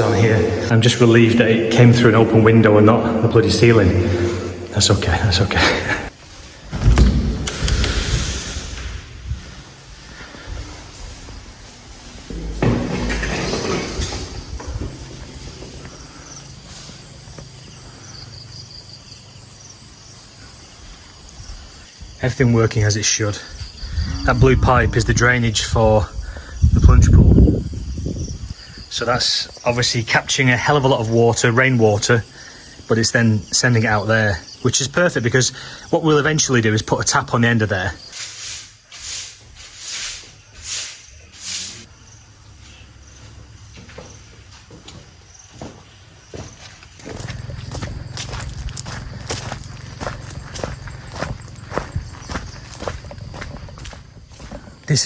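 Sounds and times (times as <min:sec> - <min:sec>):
crickets chirping: 0:00.0 - 0:55.0
low rumble: 0:23.6 - 0:26.2.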